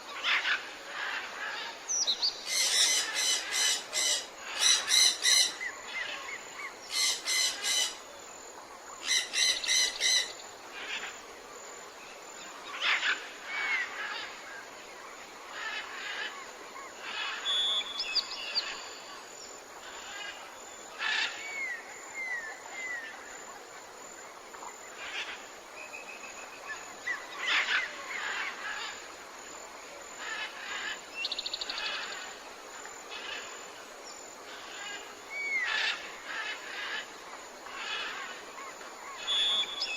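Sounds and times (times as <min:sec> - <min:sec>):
background hiss: 0:00.0 - 0:39.9
bird trill: 0:39.2 - 0:39.9.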